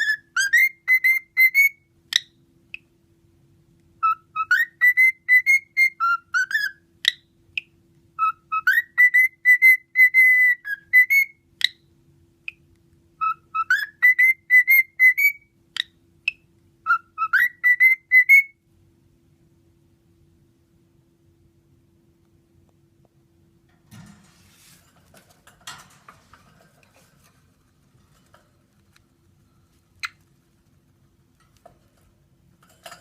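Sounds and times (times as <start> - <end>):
cockatiel whistling a tune: 0.0 - 2.3, 4.0 - 11.8, 13.2 - 18.6
cockatiel sharp chirps: 4.0 - 11.8.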